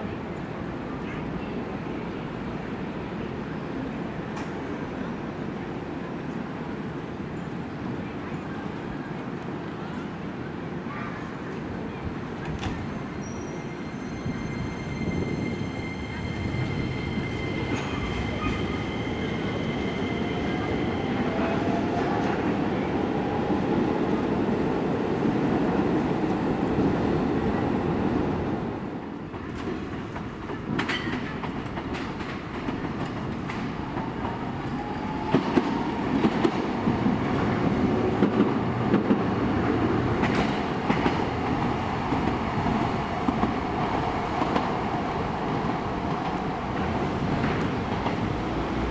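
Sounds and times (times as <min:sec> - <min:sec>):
train wheels rumbling on rail: 0:00.0 - 0:48.9
wheels clacking over rail joints: 0:29.4 - 0:48.9.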